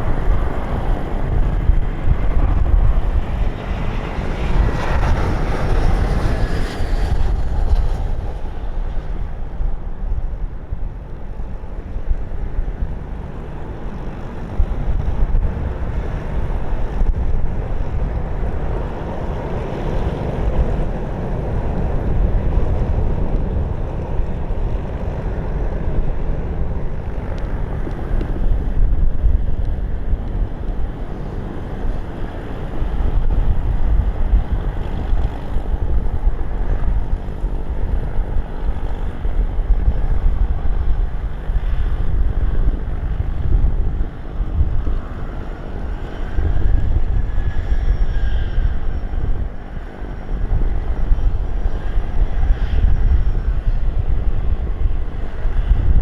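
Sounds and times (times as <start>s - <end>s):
gusty wind buffeting microphone: 0.0s - 56.0s.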